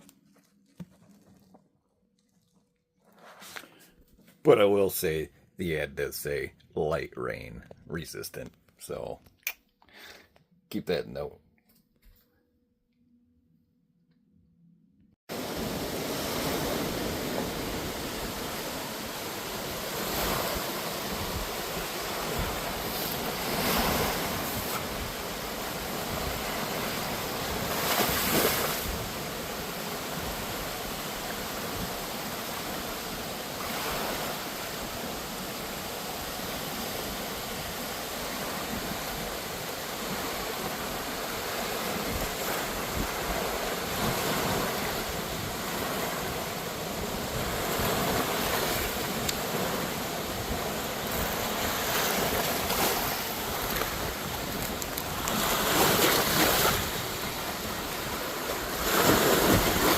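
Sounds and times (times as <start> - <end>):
wind rushing on microphone: 15.4 - 34.0, 36.2 - 59.9.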